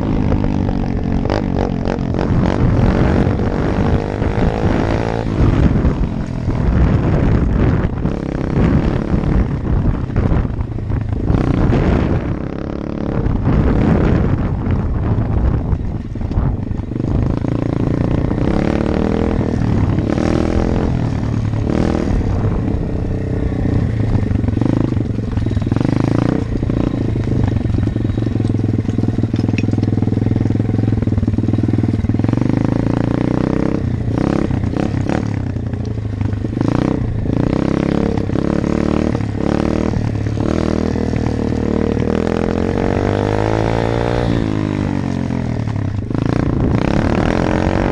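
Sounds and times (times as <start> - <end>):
dirt bike engine running: 0.0 - 47.9.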